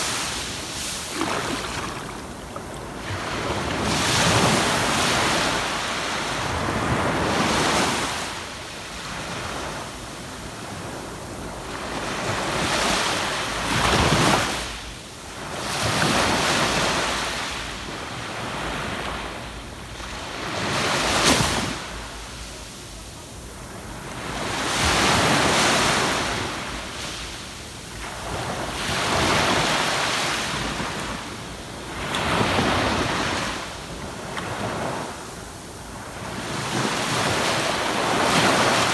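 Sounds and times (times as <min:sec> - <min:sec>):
ocean waves breaking on beach: 0:00.0 - 0:08.5, 0:35.9 - 0:38.9.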